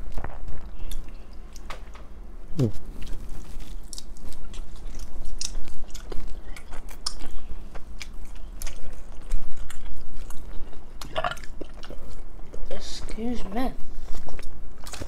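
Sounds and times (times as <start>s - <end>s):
low steady hum: 0.0s - 15.0s
chewing and biting food: 2.9s - 12.6s, 14.0s - 15.0s.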